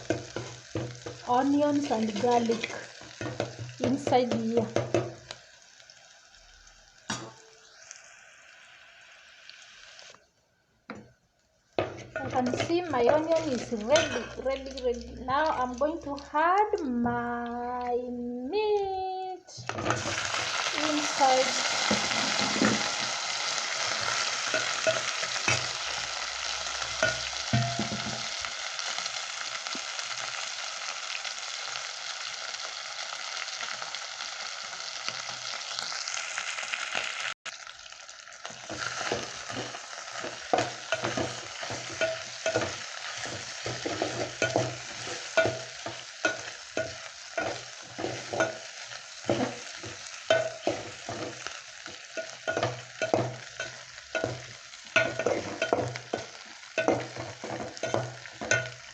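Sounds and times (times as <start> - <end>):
utensil stirring and scraping pot: 0.0 - 5.3, 11.8 - 14.8, 19.6 - 23.1, 23.7 - 26.0, 38.5 - 58.9
meat sizzling in a pot: 0.0 - 10.3, 10.9 - 58.9.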